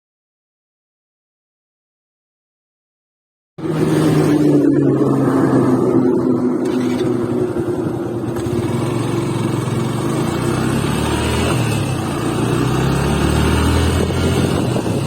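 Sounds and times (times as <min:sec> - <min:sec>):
motorcycle engine running: 0:03.6 - 0:15.0.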